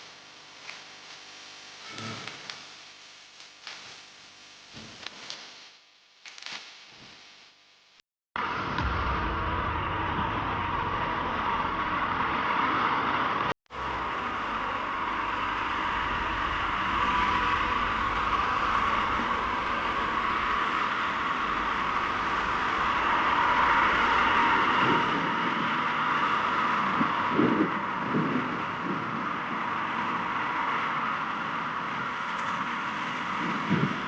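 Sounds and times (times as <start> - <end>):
wind noise: 8.4 - 34.0.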